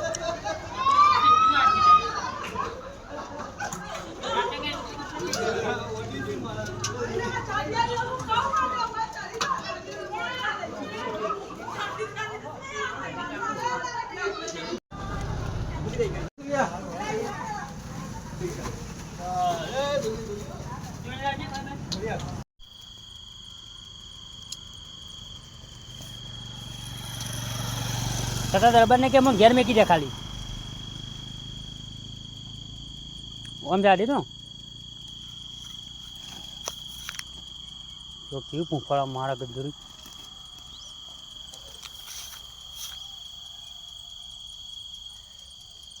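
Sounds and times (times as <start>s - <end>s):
cricket trilling: 19.3s - 46.0s
faint clicks and chirps: 23.1s - 26.1s, 32.4s - 33.6s.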